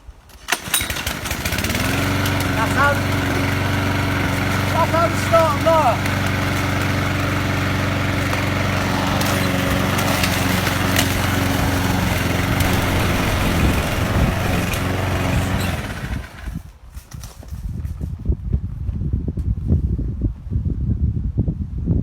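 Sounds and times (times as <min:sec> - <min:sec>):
lawnmower engine running: 0:00.3 - 0:16.7
pull-cord start: 0:00.3 - 0:16.7.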